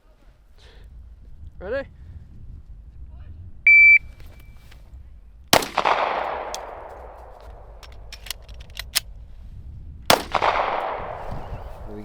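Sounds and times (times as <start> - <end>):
rifle shot: 5.5 - 9.0, 10.1 - 12.0
sharp metallic clicks: 7.4 - 9.0.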